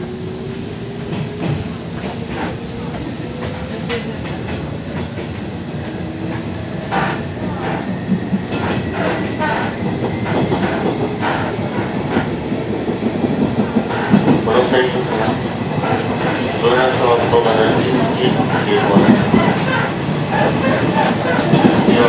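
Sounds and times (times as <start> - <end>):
train running noise: 0.0 - 22.0.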